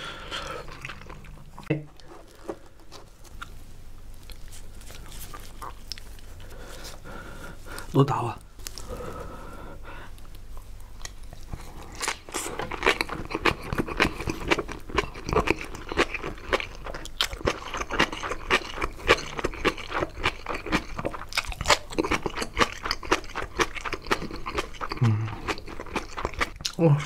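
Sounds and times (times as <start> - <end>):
crisp wet chewing crunches: 10.9 - 27.0.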